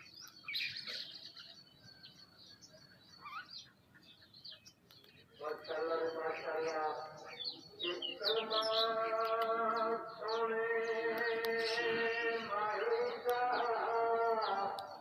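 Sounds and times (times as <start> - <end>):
birds chirping: 0.0 - 15.0
person chanting long notes: 5.4 - 15.0.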